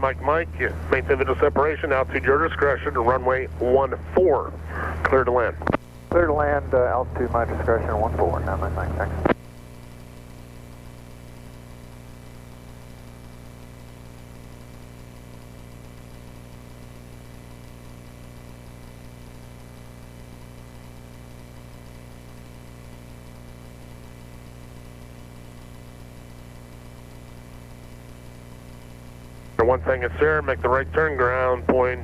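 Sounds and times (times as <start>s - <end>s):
light aircraft engine droning: 0.0s - 9.4s, 29.6s - 32.0s.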